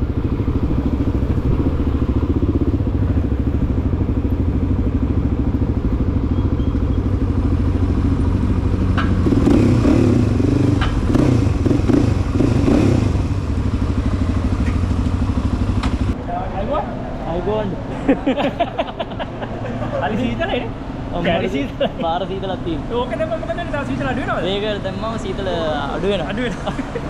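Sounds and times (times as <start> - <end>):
dirt bike engine running: 0.0 - 16.2.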